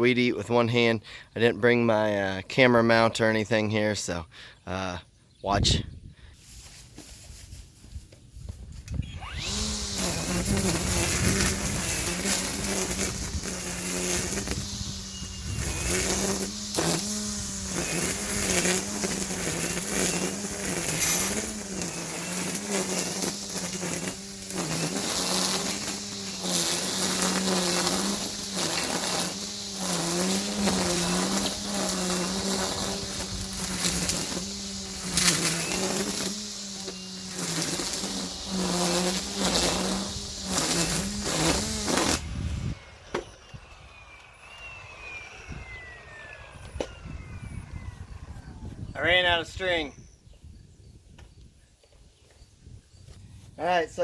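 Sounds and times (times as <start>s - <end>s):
string trimmer whining: 8.6s - 49.8s
trimmer line slapping weeds: 8.7s - 42.8s.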